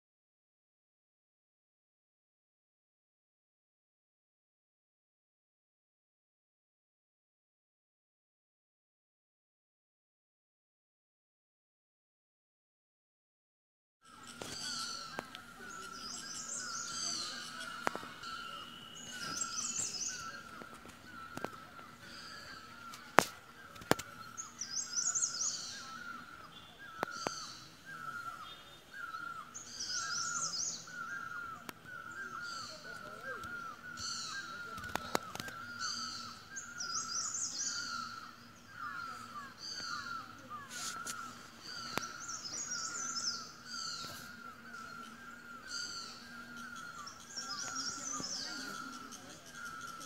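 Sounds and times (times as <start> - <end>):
birds calling: 14.1 - 50.0
high bird chirping: 14.2 - 50.0.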